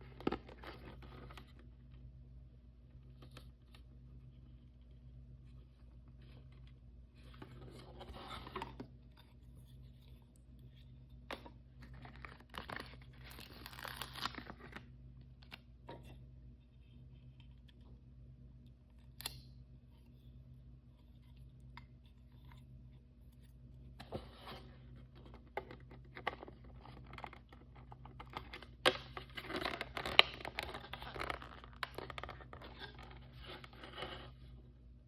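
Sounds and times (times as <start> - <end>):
packaging crinkling and tearing: 11.8 - 14.9.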